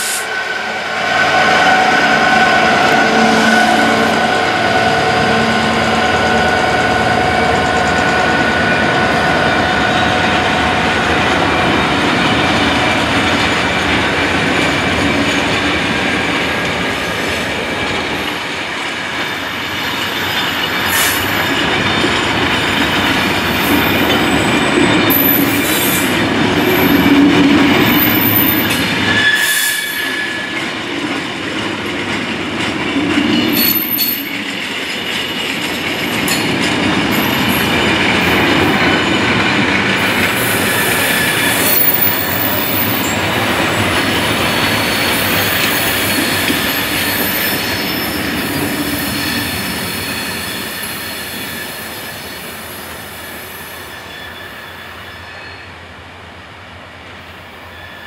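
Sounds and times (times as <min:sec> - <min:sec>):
freight train wheels rumbling: 0:00.0 - 0:58.0
high wheel squeals: 0:19.1 - 0:30.6, 0:40.0 - 0:55.8, 0:57.6 - 0:58.0.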